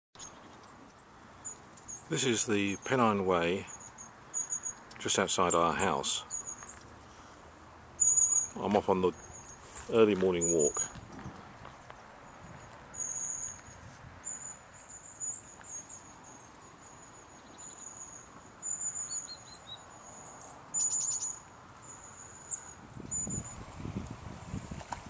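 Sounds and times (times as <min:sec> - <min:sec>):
small birds calling: 0:00.2 - 0:23.6
low rumbling handling noise: 0:08.5 - 0:12.8.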